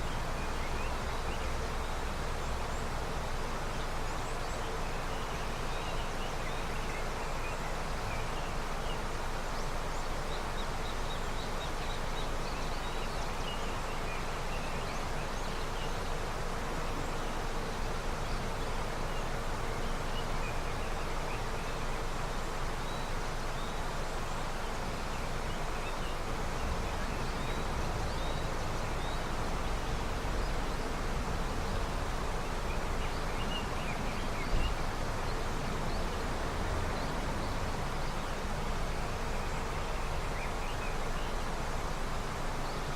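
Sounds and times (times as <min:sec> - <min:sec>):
river water rushing: 0:00.0 - 0:42.9.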